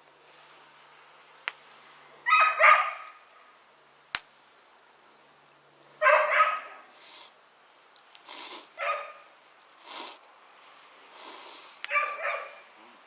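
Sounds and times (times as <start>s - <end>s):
sharp snaps: 1.4s - 1.9s, 4.1s - 4.4s, 7.9s - 8.7s, 11.2s - 12.2s
dog barking: 2.2s - 3.2s, 6.0s - 7.0s, 8.7s - 9.3s, 11.8s - 12.7s.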